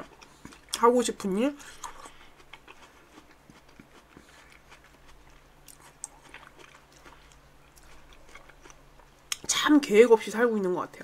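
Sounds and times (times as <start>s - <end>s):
wet chewing: 0.0s - 0.9s, 1.6s - 9.5s.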